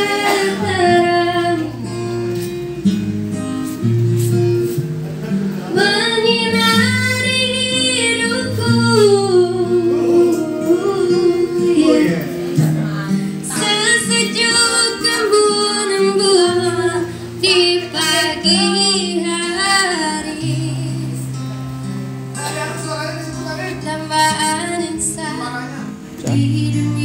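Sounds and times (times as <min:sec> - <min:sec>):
woman singing: 0:00.0 - 0:02.0, 0:05.7 - 0:21.3, 0:23.8 - 0:25.6, 0:26.2 - 0:27.0
acoustic guitar: 0:00.0 - 0:27.0.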